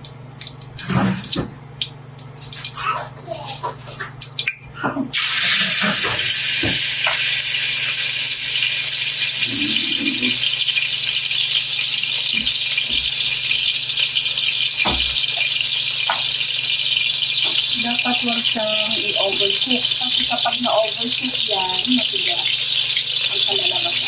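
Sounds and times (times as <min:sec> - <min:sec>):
chicken sizzling in oil: 0:05.2 - 0:24.0.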